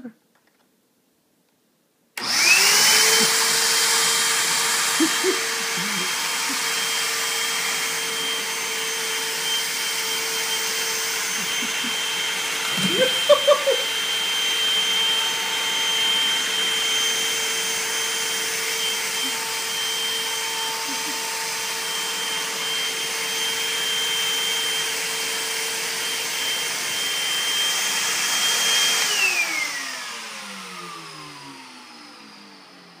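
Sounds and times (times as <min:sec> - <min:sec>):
vacuum cleaner motor whine: 0:02.2 - 0:33.0.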